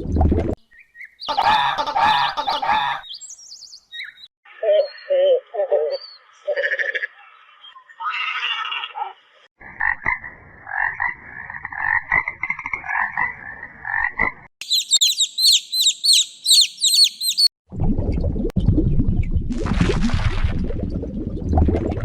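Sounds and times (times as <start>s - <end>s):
fast high-pitched chirping: 14.6s - 17.5s.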